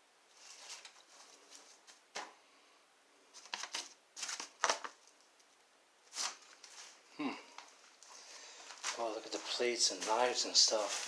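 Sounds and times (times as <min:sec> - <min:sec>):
paper rustling and crinkling: 0:00.3 - 0:02.3, 0:03.3 - 0:07.0, 0:08.6 - 0:11.0.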